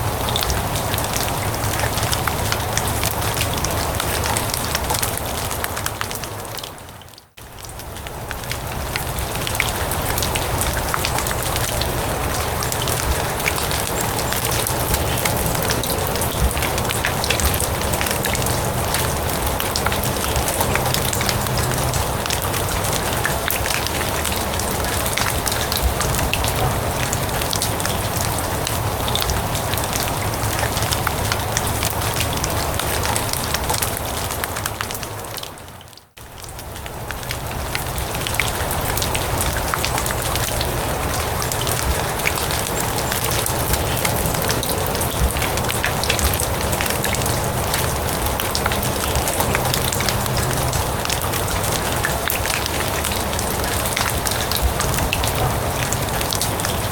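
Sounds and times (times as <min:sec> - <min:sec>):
rain falling on grass: 0:00.0 - 0:56.9.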